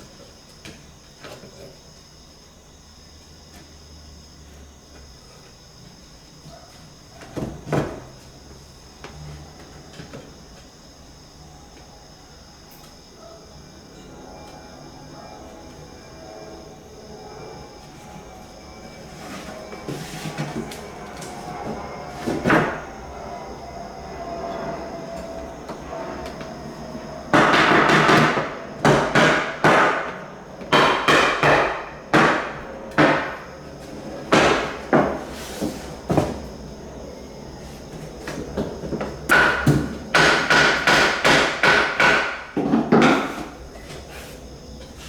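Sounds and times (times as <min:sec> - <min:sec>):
hammer blows on floorboards: 0:27.3 - 0:33.4, 0:34.2 - 0:36.5, 0:38.3 - 0:43.6.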